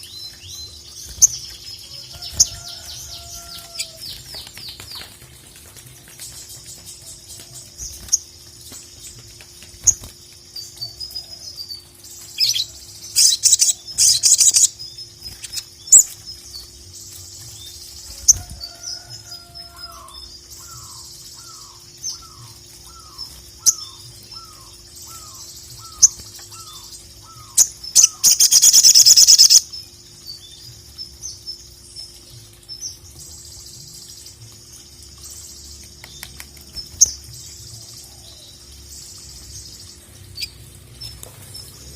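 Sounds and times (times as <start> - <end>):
bird chattering and trilling: 12.4 - 16.1, 19.9 - 29.7.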